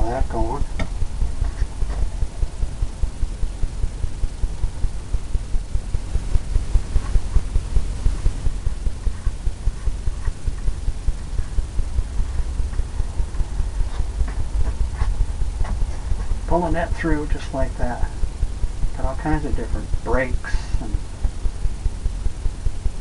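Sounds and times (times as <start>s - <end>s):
paintbrush dabbing on canvas: 6.6s - 11.6s.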